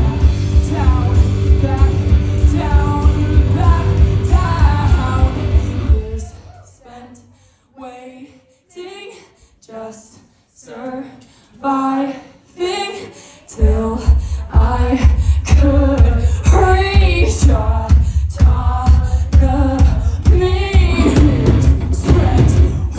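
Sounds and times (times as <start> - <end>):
live band playing: 0.0 - 6.3, 20.8 - 22.9
person singing: 0.0 - 7.3, 10.7 - 22.9.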